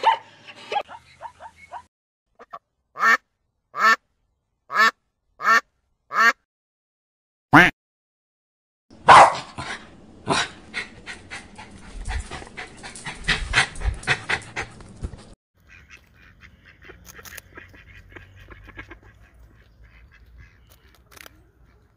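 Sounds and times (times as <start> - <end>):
small dog barking: 0.0 - 1.9, 9.0 - 10.5
dog panting rapidly: 9.6 - 15.4.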